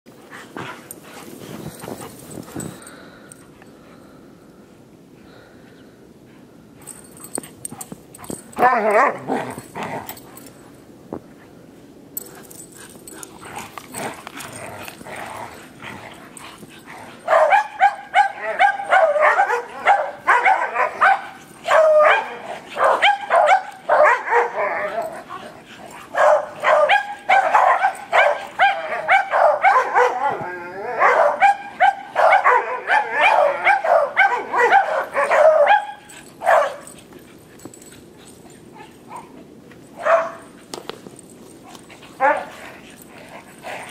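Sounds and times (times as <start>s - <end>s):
dogs barking and yipping: 6.8s - 10.5s, 12.3s - 40.8s, 41.5s - 43.9s.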